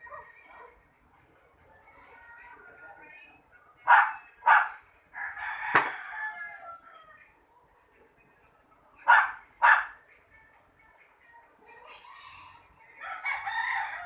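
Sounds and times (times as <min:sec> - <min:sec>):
rooster crowing: 0:05.2 - 0:07.0, 0:13.0 - 0:14.0.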